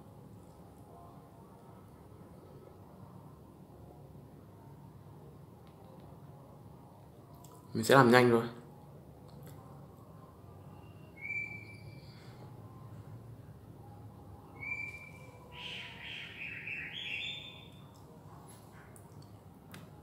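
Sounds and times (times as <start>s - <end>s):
low room hum: 0.0s - 20.0s
bird chirping and warbling: 10.8s - 12.2s, 14.5s - 17.9s.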